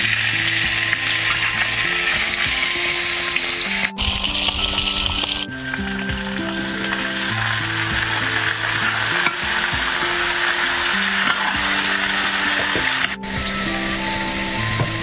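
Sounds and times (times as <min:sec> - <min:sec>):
food sizzling in a wok: 0:00.0 - 0:15.0
metal spatula scraping: 0:05.4 - 0:14.7.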